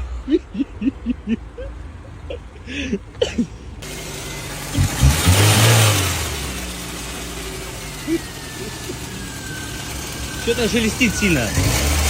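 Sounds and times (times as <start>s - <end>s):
car engine revving and idling: 3.0s - 12.0s.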